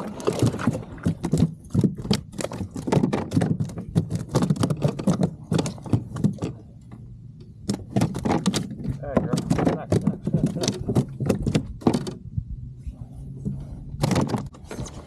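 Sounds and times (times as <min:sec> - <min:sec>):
rapid clicking and knocking: 0:00.4 - 0:06.6, 0:07.6 - 0:12.2.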